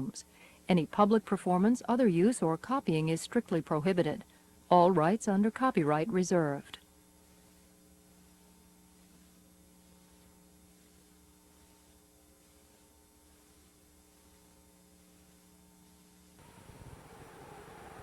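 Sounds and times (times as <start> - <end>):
faint electrical hum: 0.0 - 18.0
light hiss: 6.8 - 18.0.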